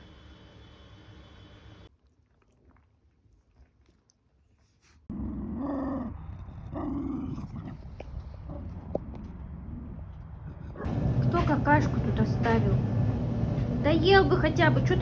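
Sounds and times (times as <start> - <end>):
dog vocalising: 5.1 - 8.8.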